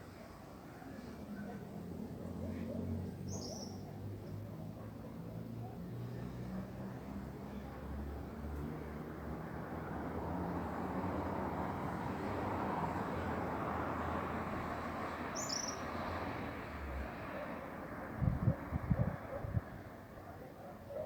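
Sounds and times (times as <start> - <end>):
rushing outdoor background noise: 0.0 - 21.0
bird chirping: 15.4 - 15.9.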